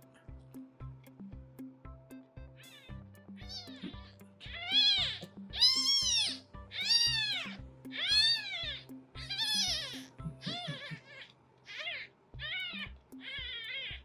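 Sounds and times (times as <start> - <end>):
kitten meowing loudly: 4.5 - 14.0.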